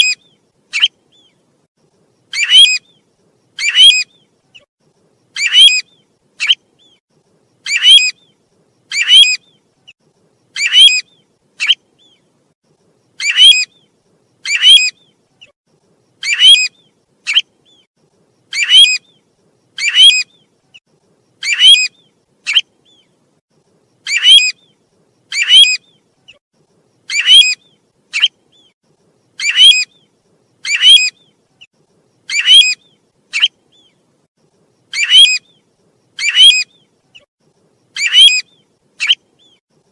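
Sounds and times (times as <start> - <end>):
high rising whistled bird call: 2.3 - 3.0, 3.6 - 4.3, 5.4 - 7.0, 7.7 - 9.6, 10.6 - 12.2, 13.2 - 13.9, 18.5 - 19.2, 21.4 - 23.1, 24.1 - 26.0, 29.4 - 31.4, 32.3 - 34.0, 35.0 - 36.9, 38.0 - 39.6.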